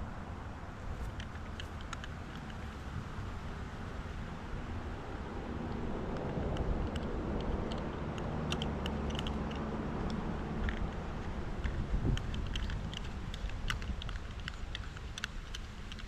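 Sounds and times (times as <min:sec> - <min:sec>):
light clicks and taps: 0:00.9 - 0:03.6, 0:05.6 - 0:16.0
vehicle driving past: 0:02.6 - 0:12.2.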